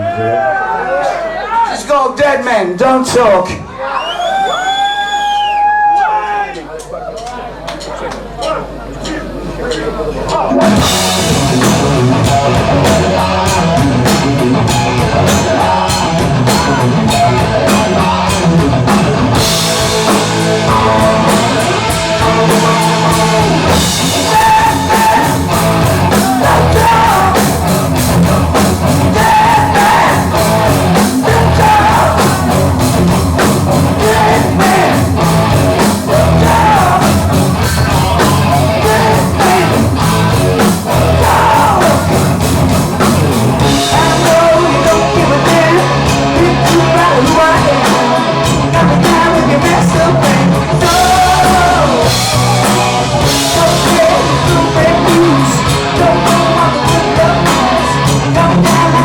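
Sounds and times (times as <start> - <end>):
hard rock band playing: 10.2 - 59.0
person singing: 10.8 - 42.4, 43.6 - 59.0.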